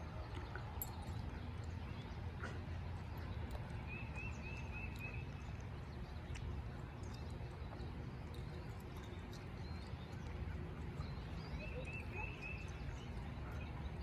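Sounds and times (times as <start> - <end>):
bird chirping: 11.0 - 14.0.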